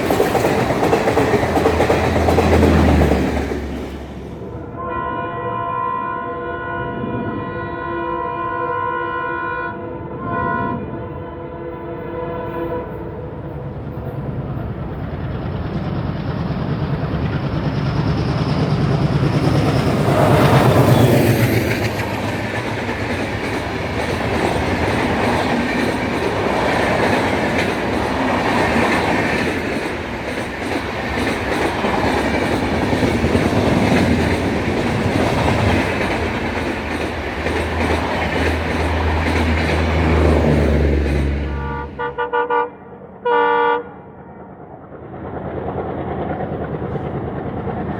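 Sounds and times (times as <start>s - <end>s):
train wheels clattering over rail joints: 0.0s - 4.4s, 14.9s - 41.3s
diesel locomotive engine passing: 0.0s - 47.9s.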